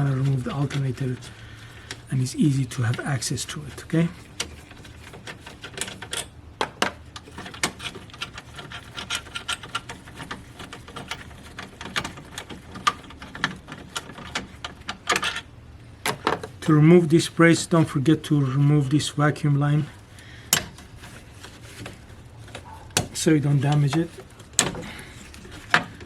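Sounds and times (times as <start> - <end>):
hand tools clicking on metal: 7.2 - 15.5.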